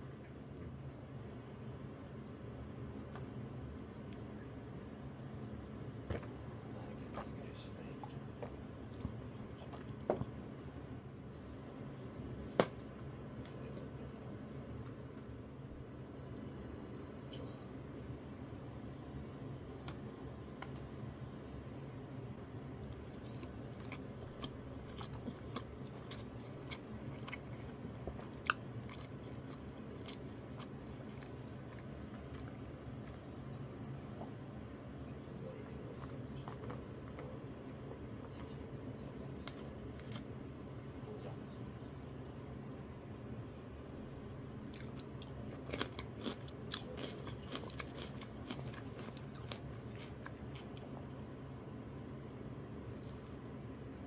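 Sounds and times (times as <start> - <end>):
steady low hum: 0.0 - 54.0
person chewing: 8.0 - 10.4, 22.7 - 34.5, 44.7 - 51.3, 52.8 - 53.6
crunching chili pepper: 44.7 - 50.9.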